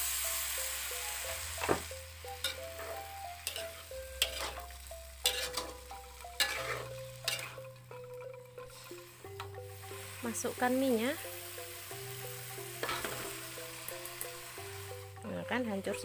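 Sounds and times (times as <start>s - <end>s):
tofu sizzling in a hot wok: 0.0s - 16.0s
metal spatula scraping a wok: 2.4s - 10.2s, 12.1s - 13.7s.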